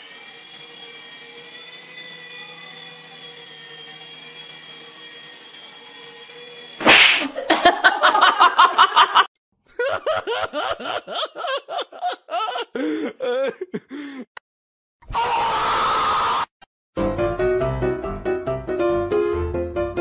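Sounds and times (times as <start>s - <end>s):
toy helicopter whirring: 0.0s - 6.8s
crash: 6.8s - 7.4s
person laughing: 7.4s - 14.4s.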